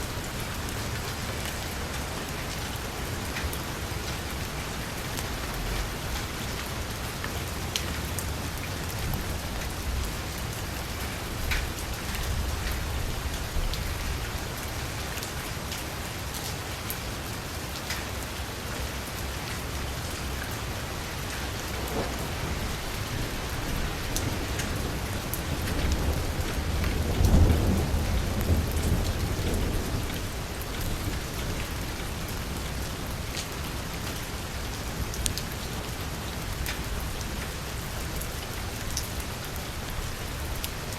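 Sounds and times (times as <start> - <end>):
heavy rain on a car roof: 0.0 - 40.9
low rumble of thunder: 3.8 - 15.0, 21.0 - 40.9.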